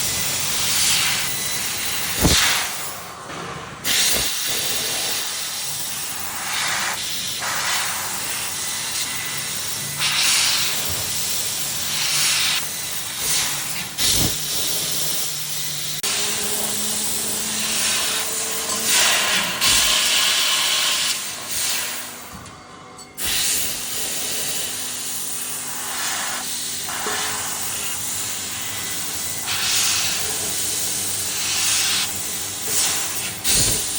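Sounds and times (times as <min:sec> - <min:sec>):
hiss of assist gas: 0:02.1 - 0:02.7, 0:03.9 - 0:05.4, 0:13.2 - 0:14.9, 0:23.2 - 0:24.7, 0:25.8 - 0:28.0.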